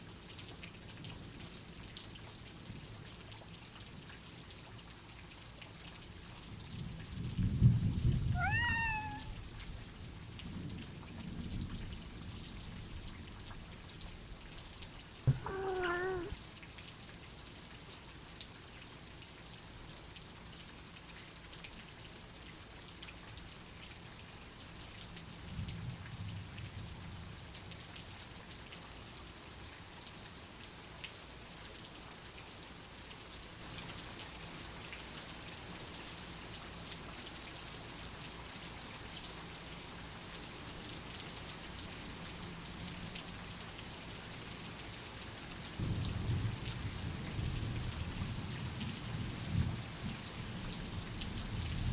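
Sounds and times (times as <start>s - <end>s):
steady rain falling: 0.0s - 51.9s
thunder rumbling: 7.6s - 9.4s.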